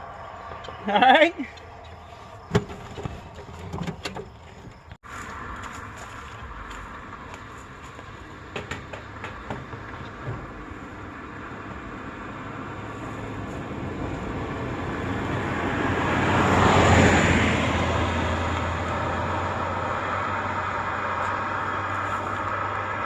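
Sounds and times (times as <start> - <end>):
vehicle passing by: 5.0 - 23.0.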